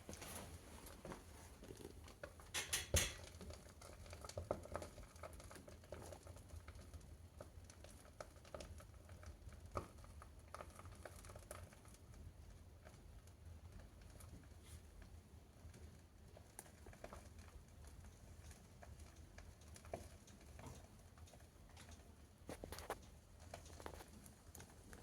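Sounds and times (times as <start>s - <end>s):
fire crackling in stove: 0.0s - 25.0s.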